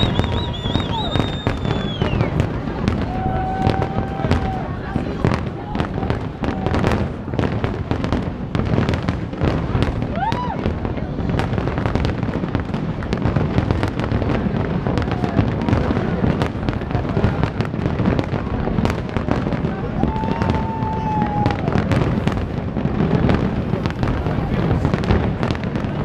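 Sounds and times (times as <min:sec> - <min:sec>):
firework whistle: 0:00.0 - 0:04.7, 0:19.8 - 0:22.4
fireworks bangs and crackles: 0:00.0 - 0:26.0.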